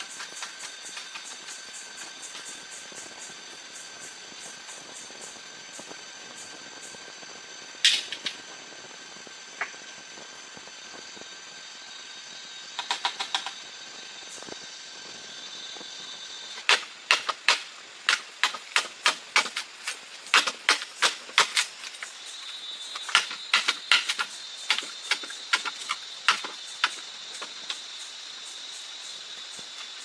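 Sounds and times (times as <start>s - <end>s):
high-pitched whine: 0.0s - 17.2s.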